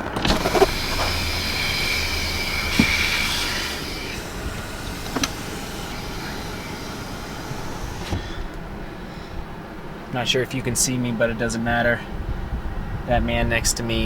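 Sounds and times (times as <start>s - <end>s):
car engine hum and whine: 0.0s - 10.2s.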